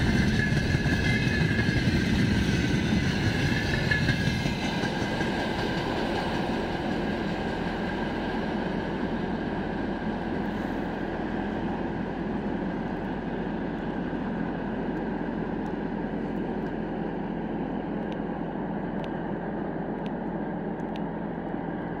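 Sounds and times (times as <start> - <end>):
freight train rolling rumble: 0.0 - 22.0.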